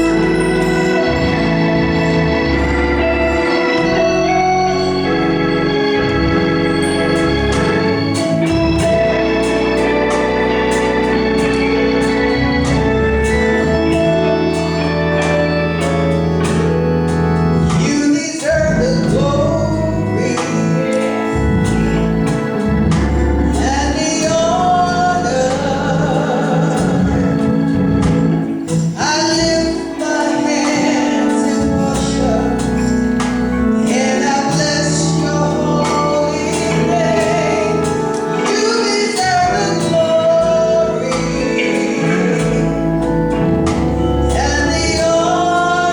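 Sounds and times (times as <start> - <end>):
gospel organ and band: 0.0 - 45.9
voices singing: 23.3 - 45.9.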